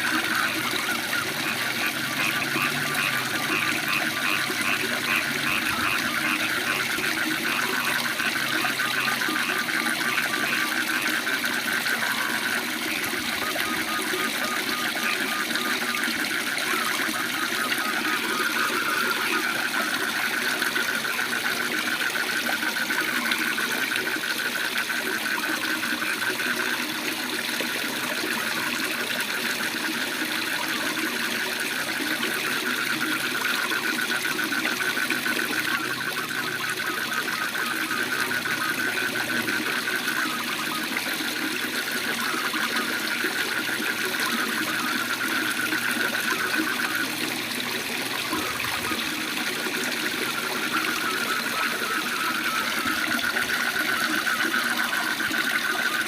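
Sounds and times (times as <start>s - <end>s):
frogs calling with trill: 0.0s - 56.0s.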